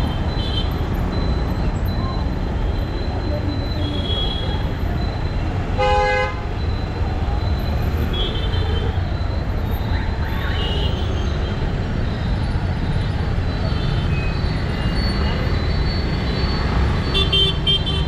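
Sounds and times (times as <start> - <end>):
traffic rumble: 0.0 - 18.0
vehicle horn honk: 5.8 - 6.4.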